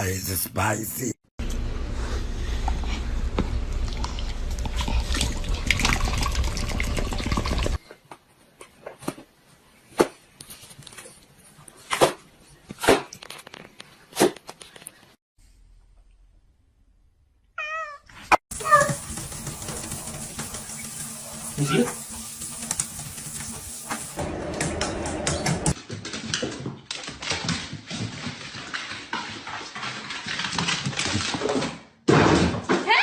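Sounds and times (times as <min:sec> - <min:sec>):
cat meowing: 0:17.6 - 0:18.9.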